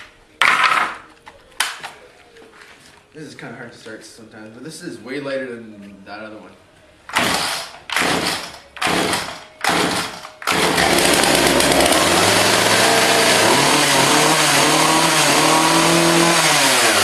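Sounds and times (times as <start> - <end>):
chainsaw pull start: 7.1 - 17.0
chainsaw running: 7.1 - 17.0.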